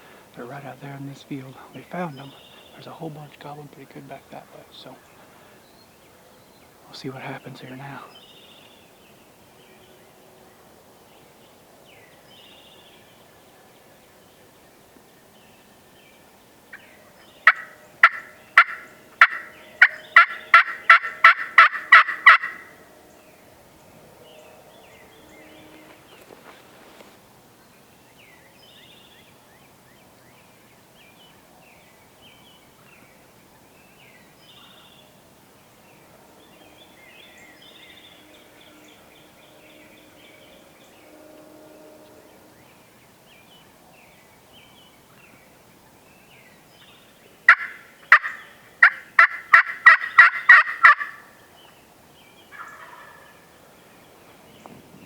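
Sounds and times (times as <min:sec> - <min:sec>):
songbirds chirping: 0:00.0 - 0:55.0
turkey yelps: 0:17.4 - 0:22.8, 0:47.5 - 0:51.3.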